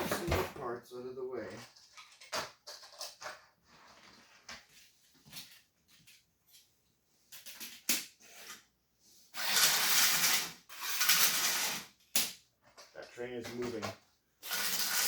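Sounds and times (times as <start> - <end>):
plastic pieces rustling clatter: 9.4 - 11.9, 14.4 - 15.0
plastic track pieces clicking: 9.4 - 12.3, 14.4 - 15.0.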